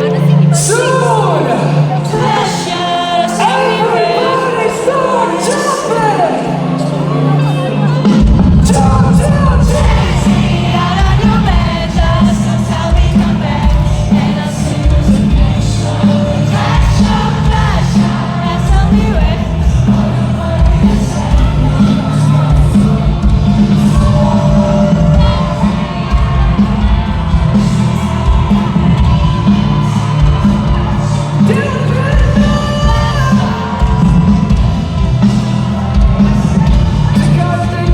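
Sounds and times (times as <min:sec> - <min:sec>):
person singing: 0:00.0 - 0:34.9
crowd voices: 0:00.0 - 0:37.9
live pop band: 0:00.0 - 0:37.9
bass and drum beat: 0:06.5 - 0:37.9.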